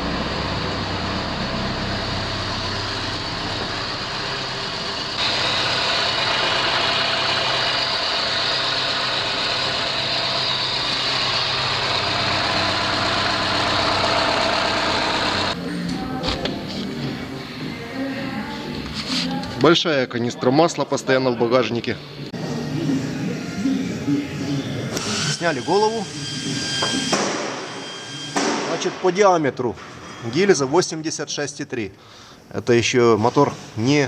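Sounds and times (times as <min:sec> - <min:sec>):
car engine idling unsteadily: 0:00.0 - 0:15.6.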